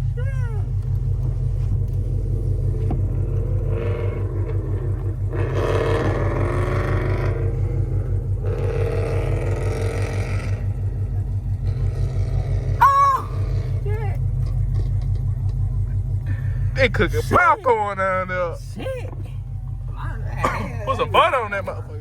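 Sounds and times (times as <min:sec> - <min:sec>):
car engine idling: 0:00.0 - 0:22.0
louder engine revving: 0:02.0 - 0:14.1.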